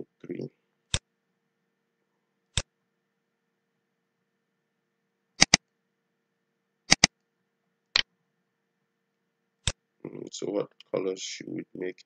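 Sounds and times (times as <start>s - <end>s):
computer mouse button clicks: 5.4s - 5.6s, 6.9s - 7.1s.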